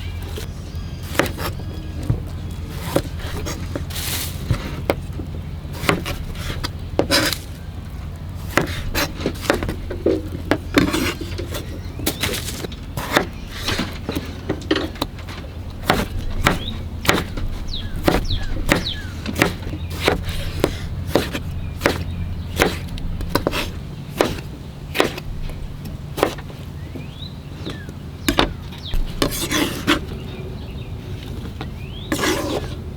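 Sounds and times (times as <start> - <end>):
steady low hum: 0.0 - 32.1
knife chopping on wooden board: 1.0 - 1.6, 5.7 - 7.5, 8.5 - 14.3, 15.8 - 26.5, 27.7 - 30.0.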